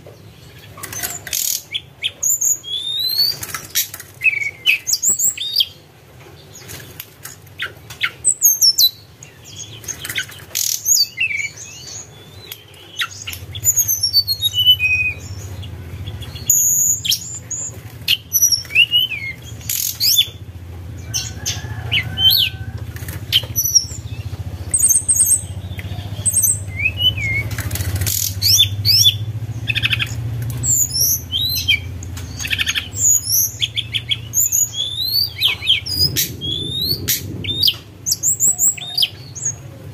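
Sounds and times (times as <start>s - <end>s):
sharp bird clicks: 0.8s - 1.8s, 6.7s - 17.3s, 18.1s - 20.4s, 22.9s - 39.2s
songbird whistling: 1.0s - 3.4s, 4.2s - 5.8s, 10.6s - 20.4s, 21.0s - 39.6s.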